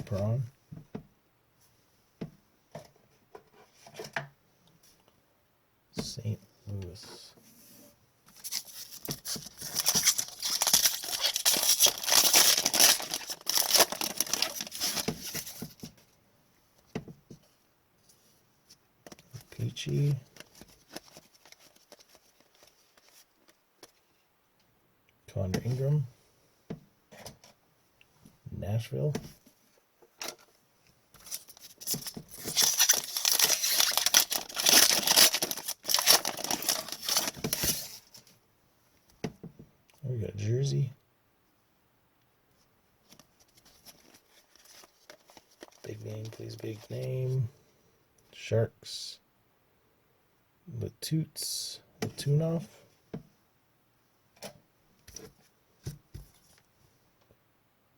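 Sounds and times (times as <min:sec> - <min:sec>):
foil wrapper tearing and crinkling: 0:08.4 - 0:15.6, 0:31.3 - 0:38.1.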